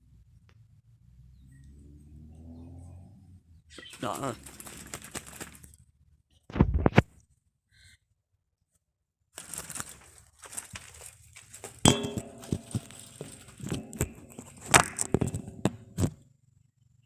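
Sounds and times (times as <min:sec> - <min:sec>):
clattering metallic knocks and clinks: 0:11.9 - 0:16.1.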